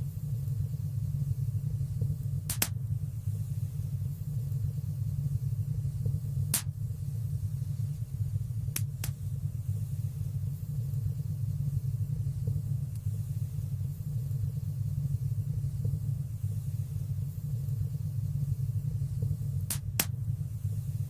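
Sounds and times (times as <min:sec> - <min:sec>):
wood fire crackles: 0:19.6 - 0:20.2.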